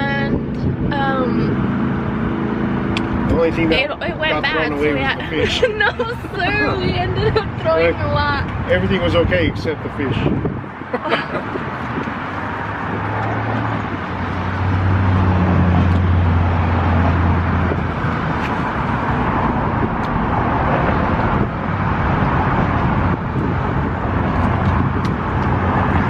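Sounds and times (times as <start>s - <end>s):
road traffic noise: 0.0s - 26.0s
vehicle engine hum: 0.0s - 26.0s.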